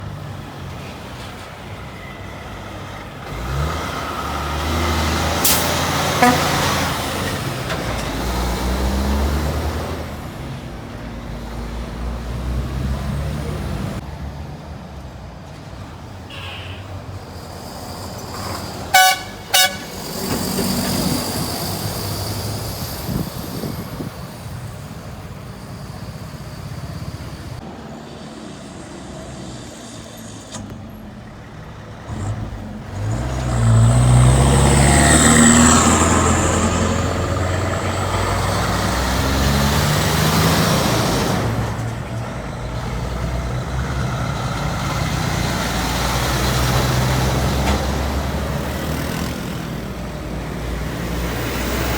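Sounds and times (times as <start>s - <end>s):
diesel engine labouring: 0.0s - 51.9s
heavy trucks driving by: 0.0s - 51.9s
truck horn blasts: 6.0s - 7.1s, 18.9s - 20.2s.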